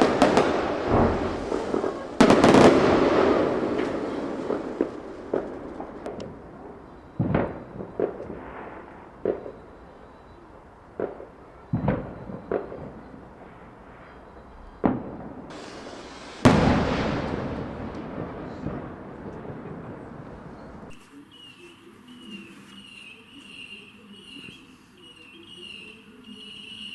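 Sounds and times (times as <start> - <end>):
rising firework hiss: 0.0 - 6.1, 15.5 - 18.8
fireworks bangs: 0.0 - 10.2, 10.9 - 26.9
high warbling chirp: 20.6 - 26.9.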